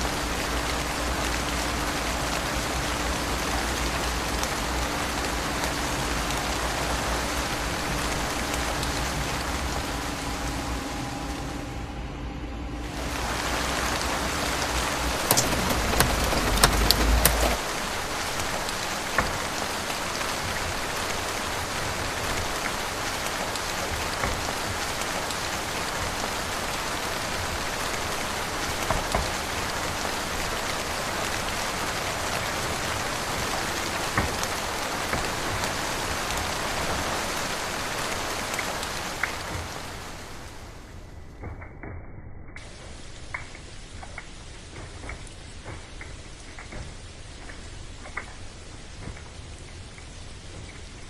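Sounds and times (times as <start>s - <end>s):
low rumble: 0.0s - 38.1s
steady rain hiss: 0.0s - 41.7s, 42.6s - 51.0s.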